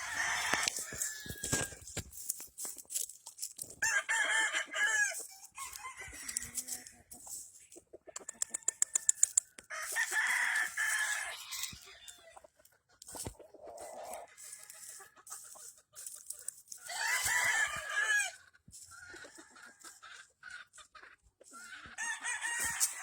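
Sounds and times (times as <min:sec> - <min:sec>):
roosters crowing: 0:00.0 - 0:02.0, 0:03.8 - 0:07.2, 0:08.2 - 0:12.4, 0:13.6 - 0:15.0, 0:16.8 - 0:20.0, 0:21.9 - 0:23.0
quick clicks: 0:08.2 - 0:09.6.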